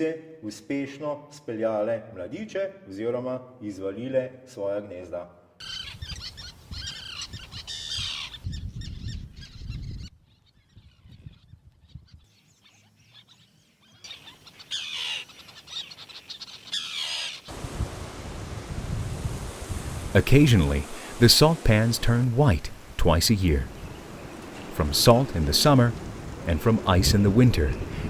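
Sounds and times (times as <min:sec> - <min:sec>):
high downward-sweeping bird calls: 0:05.6 - 0:17.7.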